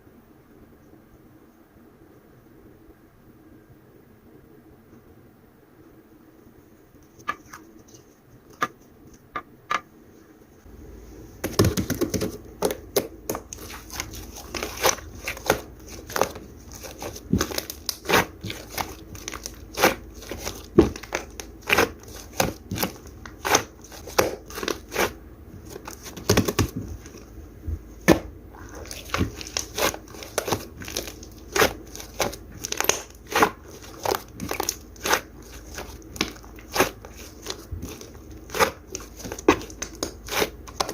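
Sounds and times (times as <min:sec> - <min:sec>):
crinkling and crackling clicks: 0:28.7 - 0:40.9.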